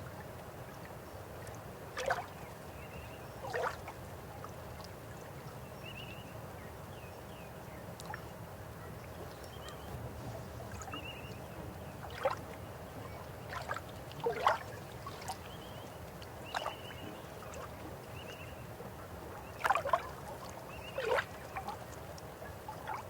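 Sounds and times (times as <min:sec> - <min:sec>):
river water flowing: 0:09.0 - 0:23.0
water gurgles and splashes: 0:09.8 - 0:15.6.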